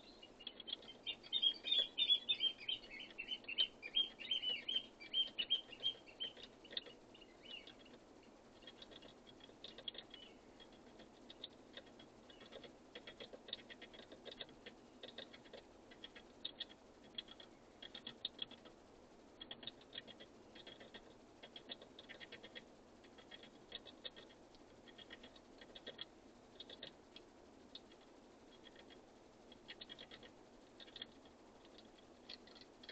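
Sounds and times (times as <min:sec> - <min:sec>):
bird chirps: 0:00.0 - 0:08.0, 0:08.6 - 0:11.6, 0:12.2 - 0:12.7, 0:29.6 - 0:31.2
birds pecking with clicking taps: 0:00.4 - 0:18.8, 0:19.4 - 0:32.9.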